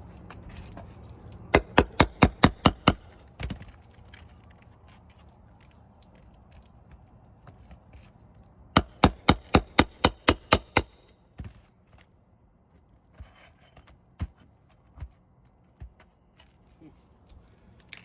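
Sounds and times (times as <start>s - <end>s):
hammer striking metal: 1.6s - 3.1s, 8.8s - 11.1s.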